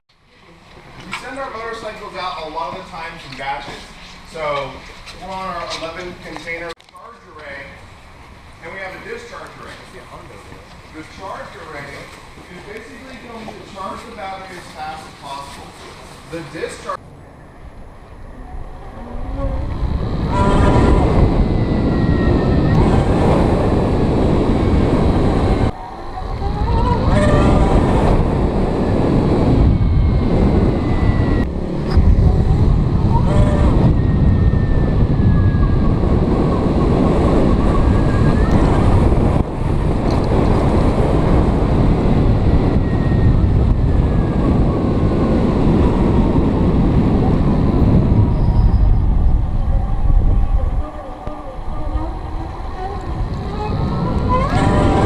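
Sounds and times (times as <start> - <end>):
wind rushing over microphone: 7.4 - 55.0
electric motor whine: 18.2 - 35.6.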